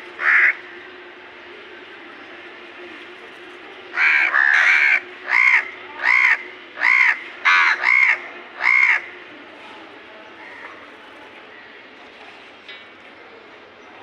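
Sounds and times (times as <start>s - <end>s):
crow cawing: 0.2s - 0.6s, 4.0s - 9.1s.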